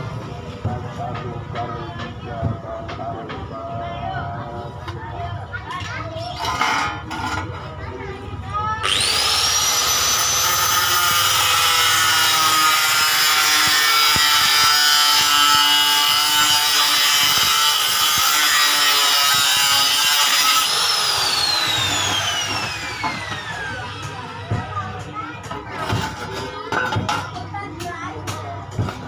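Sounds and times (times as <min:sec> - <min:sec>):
coconut grater rasping: 0:08.8 - 0:23.8
electric motor whine: 0:08.8 - 0:23.9.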